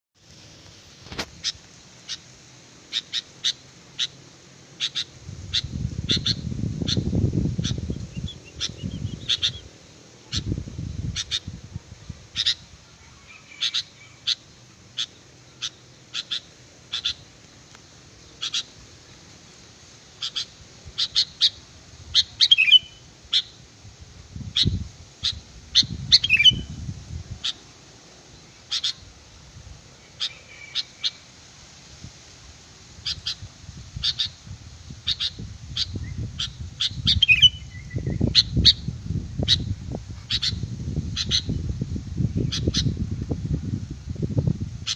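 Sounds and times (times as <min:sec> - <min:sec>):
low rumbling noise: 0:05.2 - 0:13.5
bird chirping sharply: 0:07.6 - 0:09.7, 0:22.2 - 0:23.5, 0:24.6 - 0:26.7, 0:35.1 - 0:38.8.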